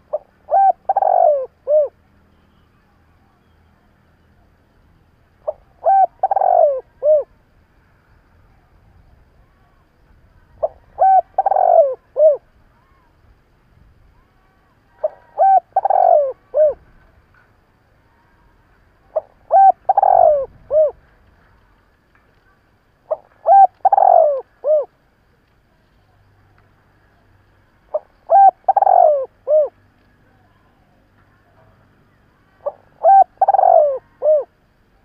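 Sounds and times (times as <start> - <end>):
dove cooing: 0.0 - 2.0, 5.4 - 7.3, 10.6 - 12.5, 15.0 - 16.9, 19.1 - 21.0, 23.0 - 24.9, 27.9 - 29.8, 32.6 - 34.6.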